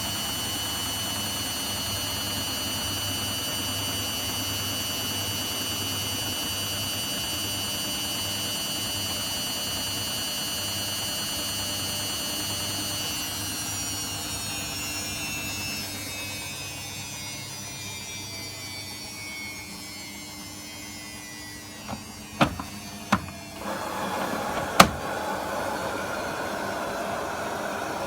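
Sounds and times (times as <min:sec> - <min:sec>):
washing machine motor whine: 0:17.2 - 0:28.0.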